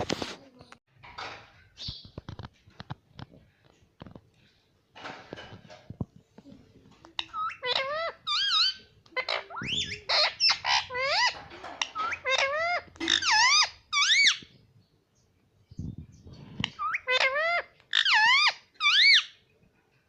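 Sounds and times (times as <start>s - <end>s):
parakeet squeaky calls: 7.2s - 14.5s, 16.7s - 19.4s.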